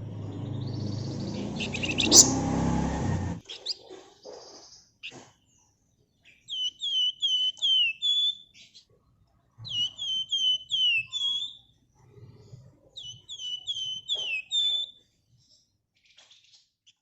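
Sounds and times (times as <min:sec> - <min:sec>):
bird singing whistled notes: 0:00.0 - 0:03.4, 0:06.3 - 0:08.6, 0:09.7 - 0:11.7, 0:13.0 - 0:15.0.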